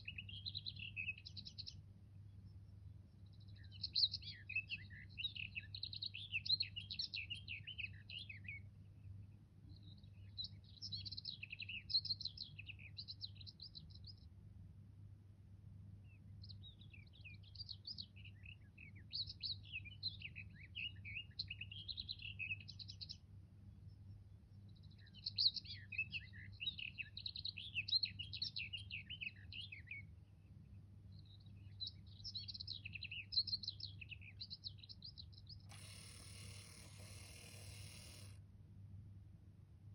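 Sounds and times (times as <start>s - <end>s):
cuckoo clock birdsong: 35.6s - 38.4s.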